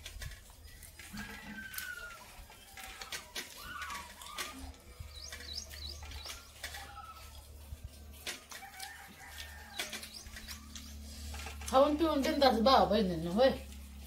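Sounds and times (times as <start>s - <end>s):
steady low hum: 0.0s - 14.0s
small birds chirping: 0.3s - 8.1s, 8.7s - 13.6s.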